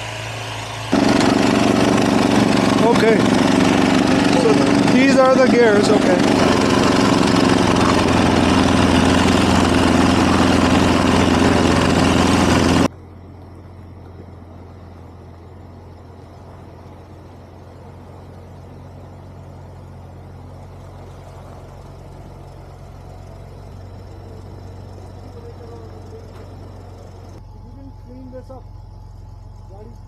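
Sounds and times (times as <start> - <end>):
snowblower engine running: 0.0 - 30.0.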